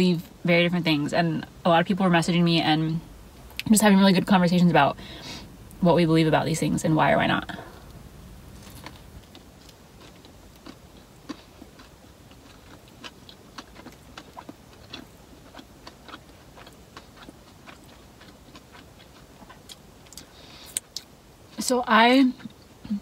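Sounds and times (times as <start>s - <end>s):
person chewing with mouth closed: 8.6s - 21.1s.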